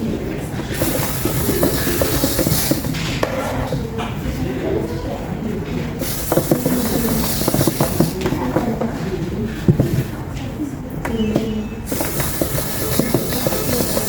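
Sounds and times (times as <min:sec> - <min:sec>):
toy gear motor running: 0:00.5 - 0:03.2, 0:06.0 - 0:08.5, 0:11.8 - 0:14.0
plastic parts clicking: 0:00.6 - 0:04.2, 0:06.0 - 0:09.0, 0:11.0 - 0:14.0.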